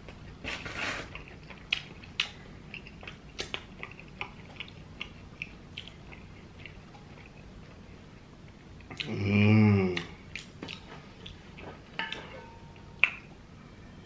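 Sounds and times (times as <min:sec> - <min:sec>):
chewing with mouth clicks: 0:01.1 - 0:09.2, 0:09.9 - 0:12.3, 0:13.0 - 0:13.3.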